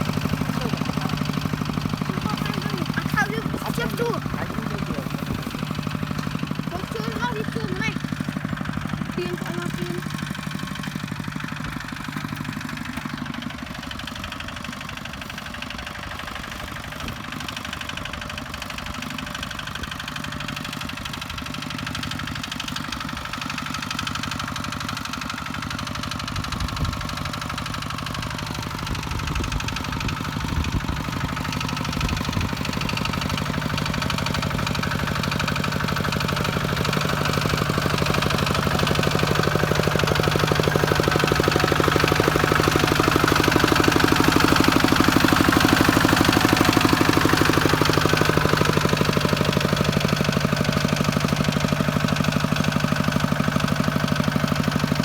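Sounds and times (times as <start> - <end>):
diesel engine knocking: 0.0 - 55.0.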